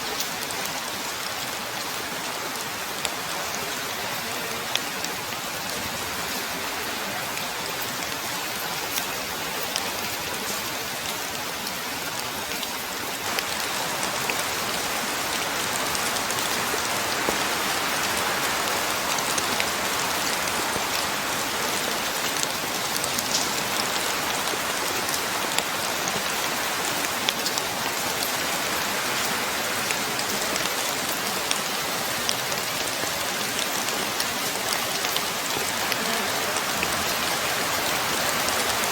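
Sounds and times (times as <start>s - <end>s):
steady rain falling: 0.0s - 38.9s
sharp raindrop hits: 13.3s - 25.7s.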